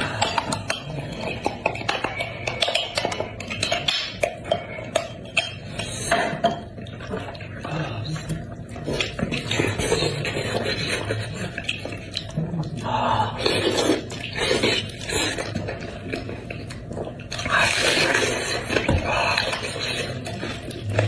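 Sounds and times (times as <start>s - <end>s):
utensils clicking against a dish: 0.0s - 6.6s
wet chewing: 0.0s - 21.0s.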